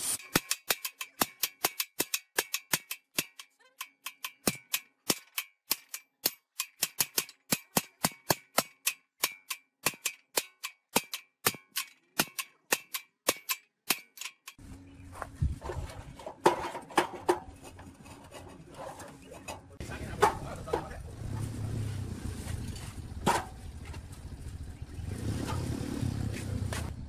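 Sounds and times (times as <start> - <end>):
hammer striking steel: 0.1 - 14.6.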